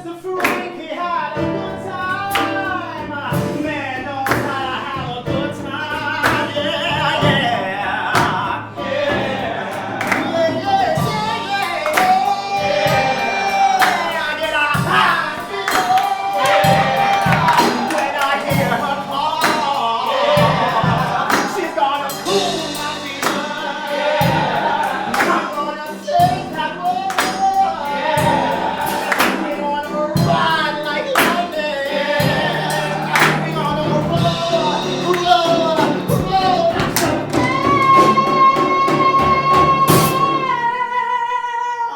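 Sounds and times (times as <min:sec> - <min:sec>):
musical accompaniment: 0:00.0 - 0:41.5
chorus singing: 0:00.0 - 0:41.9
sharp percussive hits: 0:08.2 - 0:29.6, 0:32.2 - 0:40.4.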